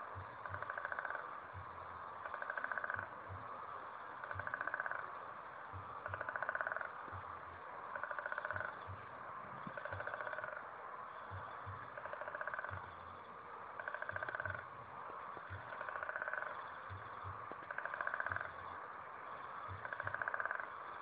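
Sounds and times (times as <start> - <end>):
rapid frog trill: 0.0 - 3.5, 4.2 - 5.2, 6.0 - 7.2, 7.9 - 9.0, 9.6 - 10.7, 11.4 - 13.1, 13.8 - 14.7, 15.5 - 18.8, 19.5 - 21.0
chorus of frogs: 0.0 - 21.0
soft low knocks: 0.1 - 10.6, 11.3 - 13.2, 14.0 - 18.8.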